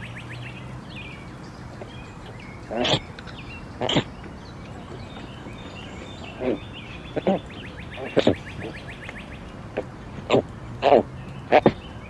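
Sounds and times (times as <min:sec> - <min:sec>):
short bird calls: 0:00.0 - 0:12.0
steady outdoor hiss: 0:00.0 - 0:12.0
rattling bird trill: 0:01.8 - 0:09.5.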